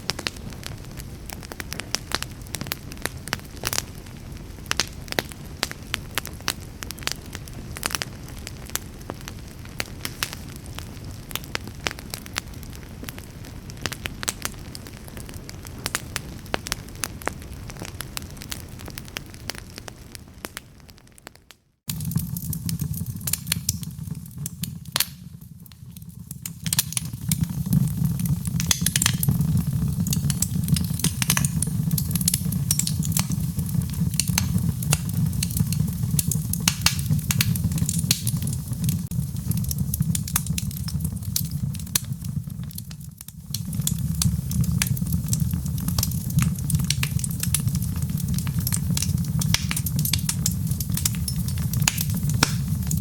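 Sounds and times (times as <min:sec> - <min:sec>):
low rumble of burning: 0:00.0 - 0:53.0
wood fire crackling and popping: 0:00.0 - 0:53.0.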